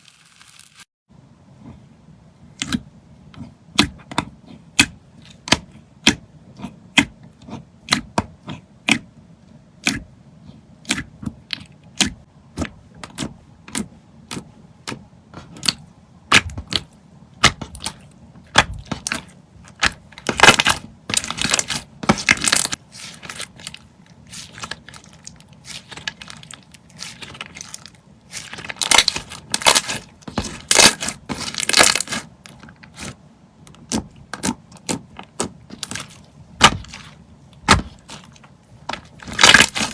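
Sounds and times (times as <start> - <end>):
slime crackling: 15.4 - 33.2, 33.8 - 39.9.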